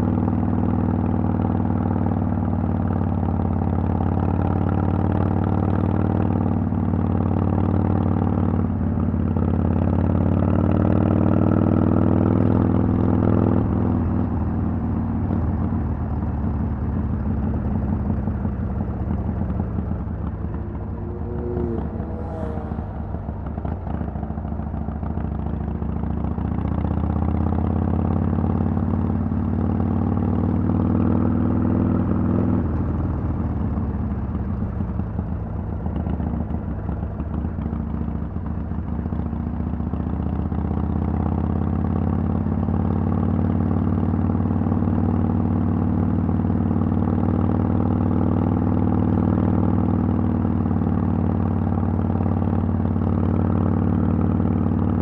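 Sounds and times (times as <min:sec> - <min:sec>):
motorcycle engine revving: 0:16.4 - 0:34.9.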